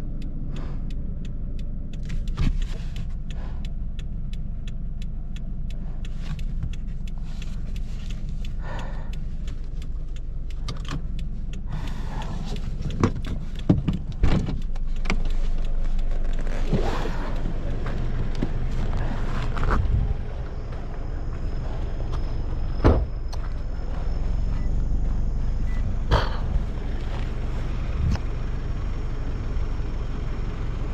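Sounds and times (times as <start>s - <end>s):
car road and drivetrain rumble: 0.0s - 30.9s
rapid ticking and rattling: 0.2s - 22.2s.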